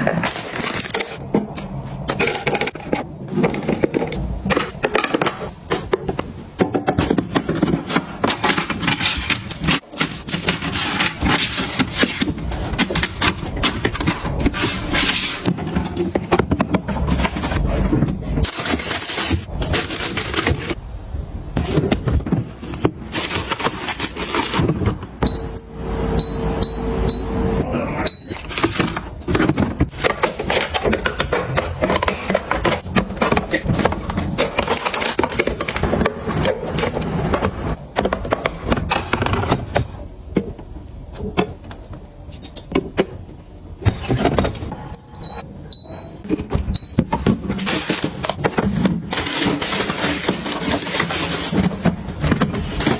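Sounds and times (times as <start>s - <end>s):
household items clattering: 0.0s - 20.8s, 21.6s - 27.2s, 28.1s - 41.8s, 45.7s - 52.9s
short high beeps: 25.2s - 28.4s.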